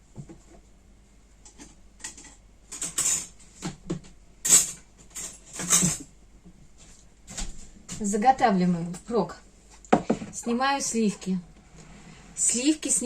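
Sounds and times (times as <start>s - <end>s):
kitchen utensils scraping and rustling: 1.5s - 3.6s, 4.4s - 6.1s, 10.0s - 13.0s.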